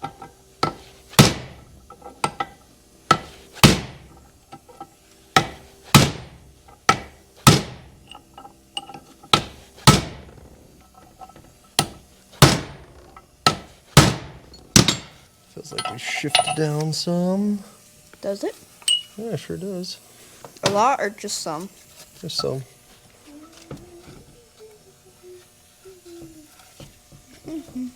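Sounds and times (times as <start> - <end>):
hammer striking metal: 13.4 - 16.8, 18.9 - 19.2.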